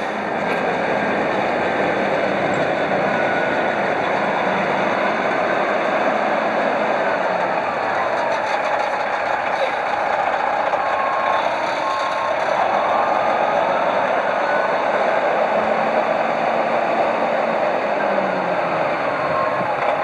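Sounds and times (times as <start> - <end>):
reversing alarm beeps: 0.0 - 15.4, 17.8 - 20.0
heavy diesel truck running: 0.0 - 20.0.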